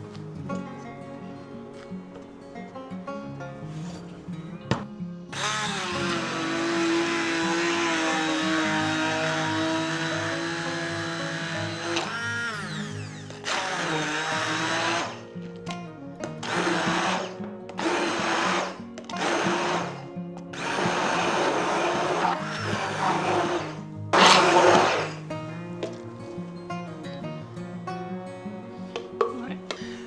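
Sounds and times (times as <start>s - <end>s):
soft acoustic background music: 0.0s - 30.0s
blender pulsing: 5.3s - 15.3s, 16.4s - 25.3s.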